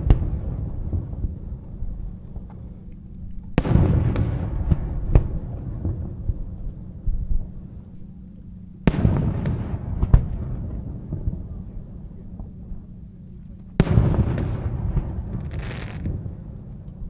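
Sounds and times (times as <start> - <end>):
firework booms: 0.0 - 1.4, 3.6 - 6.6, 8.8 - 12.5, 13.8 - 16.6
rumble after boom: 0.0 - 7.7, 8.8 - 12.9, 13.6 - 17.0.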